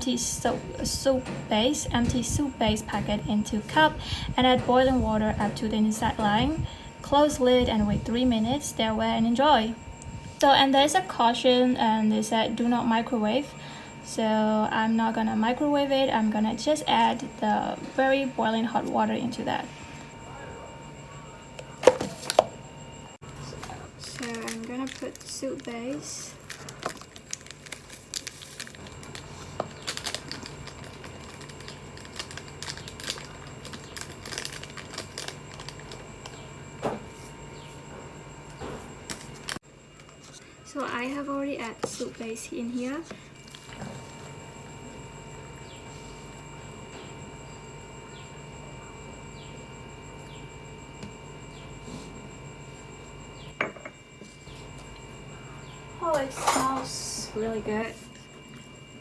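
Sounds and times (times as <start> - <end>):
plastic sachet crinkling: 23.7 - 36.4.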